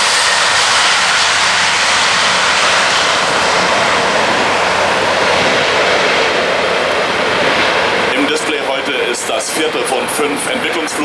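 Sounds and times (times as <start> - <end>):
turboprop engines at takeoff: 0.0 - 11.0.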